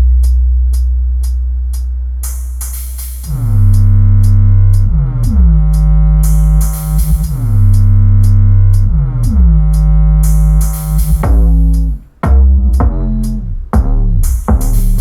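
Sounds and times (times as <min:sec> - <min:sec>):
bass line with pitch drops: 0:00.0 - 0:15.0
deep bass note: 0:00.0 - 0:15.0
ticking hi-hat: 0:00.0 - 0:15.0
electronic dance music: 0:02.2 - 0:07.7, 0:09.2 - 0:15.0.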